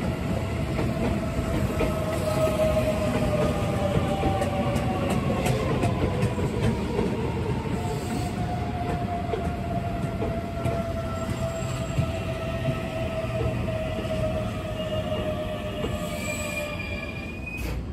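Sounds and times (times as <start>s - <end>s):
train wheels rumbling on rails: 0.0s - 17.9s.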